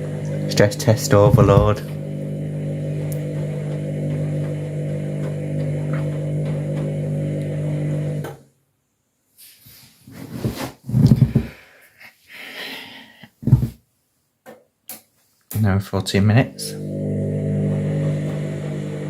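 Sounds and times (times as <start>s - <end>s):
washing machine motor humming: 0.0s - 8.4s, 16.4s - 19.0s.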